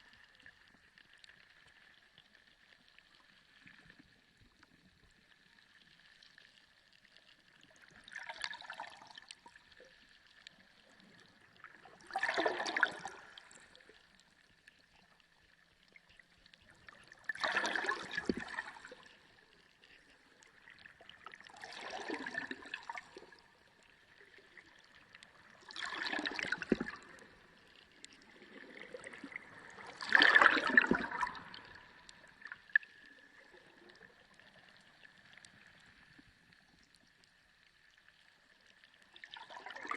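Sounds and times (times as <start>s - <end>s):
underwater rushing bubbling water: 10.8s - 14.0s, 16.8s - 19.6s, 20.5s - 36.1s, 39.3s - 39.9s.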